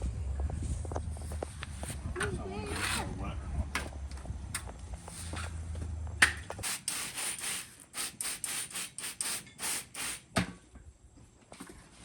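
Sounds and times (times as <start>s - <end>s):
tool scraping mortar: 1.3s - 3.2s.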